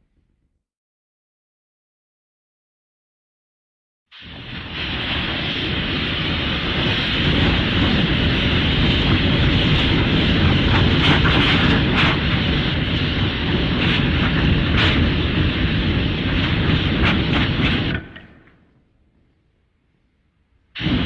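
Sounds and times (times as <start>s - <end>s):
jet-like rushing roar: 4.2s - 18.6s, 20.8s - 21.0s
scattered crackles: 4.2s - 19.4s.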